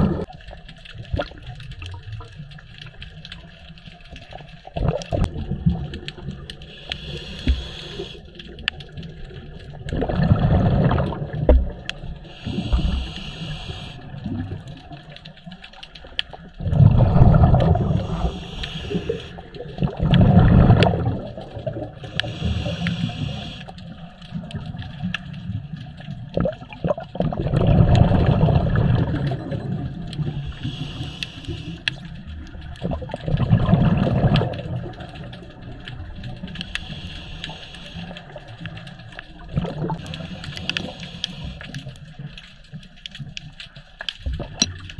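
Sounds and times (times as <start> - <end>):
exhaled bubbles underwater: 0.0 - 43.6, 44.2 - 44.9
regulator hissing inhale: 6.6 - 8.4, 12.2 - 14.2, 17.8 - 19.7, 22.0 - 23.8, 30.3 - 32.1, 36.6 - 38.4, 40.0 - 42.0.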